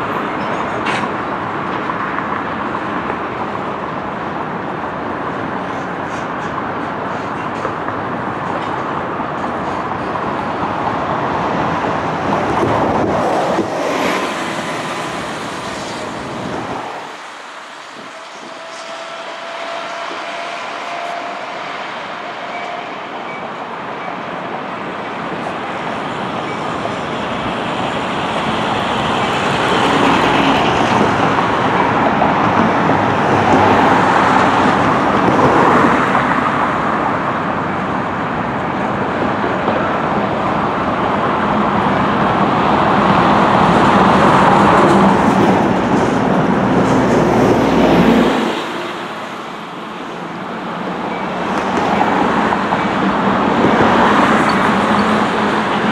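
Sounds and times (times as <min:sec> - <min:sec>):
freight train wheels rumbling on rail: 0:00.0 - 0:55.9.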